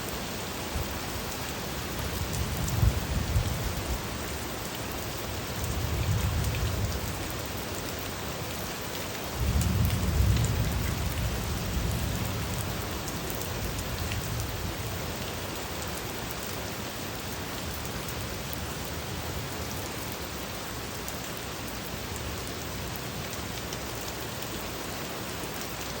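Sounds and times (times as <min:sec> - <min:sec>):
rain falling: 0:00.0 - 0:26.0
thunder rumbling: 0:09.4 - 0:14.8.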